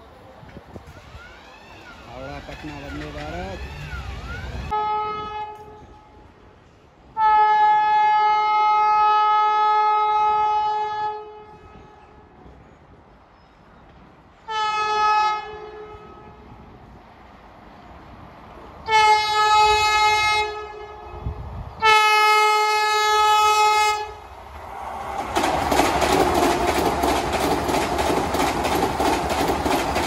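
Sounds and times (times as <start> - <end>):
train passing at speed: 0.0 - 30.0
wheels clacking over rail joints: 1.8 - 4.4, 24.5 - 30.0
train horn blasts: 4.7 - 6.2, 7.1 - 12.3, 14.4 - 16.5, 18.8 - 24.2.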